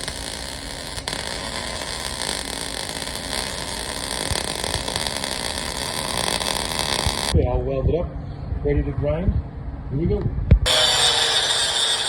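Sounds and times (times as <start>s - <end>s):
arc welding crackling hiss: 0.0s - 7.4s.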